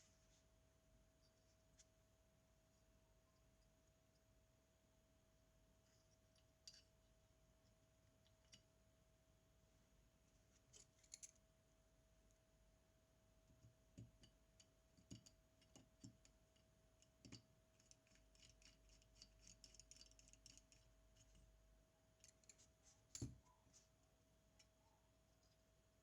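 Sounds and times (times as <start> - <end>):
faint steady tone: 0.0 - 26.0
small metal tools clicking: 6.3 - 6.9, 10.7 - 11.4, 14.2 - 21.4, 22.2 - 23.3.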